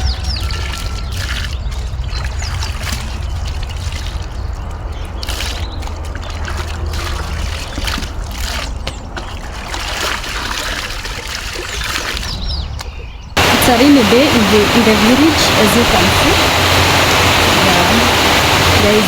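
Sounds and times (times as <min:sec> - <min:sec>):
water trickling and splashing: 0:00.0 - 0:19.0
rain falling: 0:13.4 - 0:19.0.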